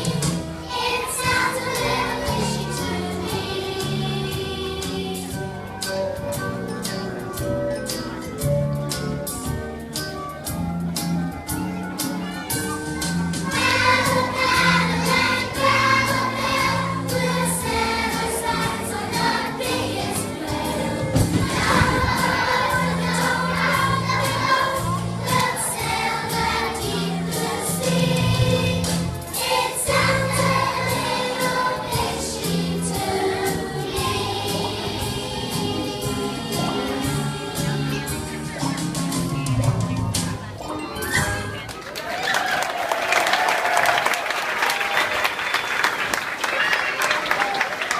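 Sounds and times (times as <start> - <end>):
group of voices singing: 0.0 - 5.4, 13.5 - 38.2
instrumental backing with bass line: 2.7 - 41.7.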